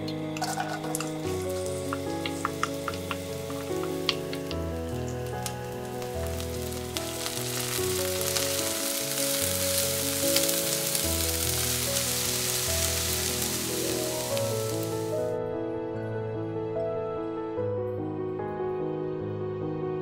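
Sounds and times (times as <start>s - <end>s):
onions sizzling in hot oil: 0.0s - 15.3s
background music sustained notes: 0.0s - 20.0s.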